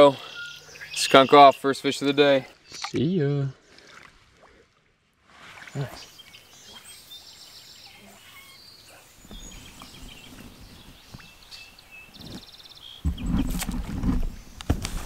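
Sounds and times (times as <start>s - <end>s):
small birds chirping: 0.0s - 3.7s, 5.7s - 15.0s.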